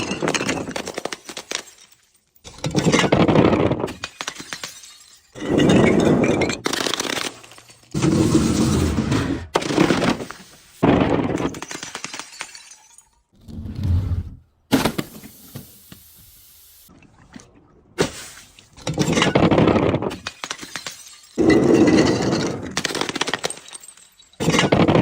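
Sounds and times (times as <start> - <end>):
glass crushing and shattering: 0.0 - 8.8, 9.5 - 13.4, 18.8 - 25.0.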